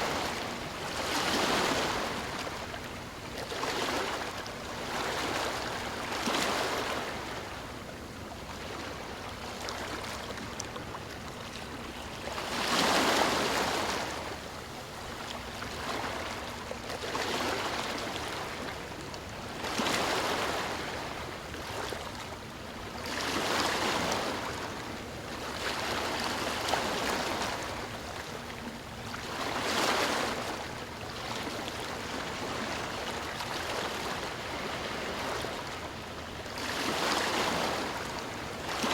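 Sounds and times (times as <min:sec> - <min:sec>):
ocean waves breaking: 0:00.0 - 0:07.6, 0:11.1 - 0:14.5, 0:25.5 - 0:38.9.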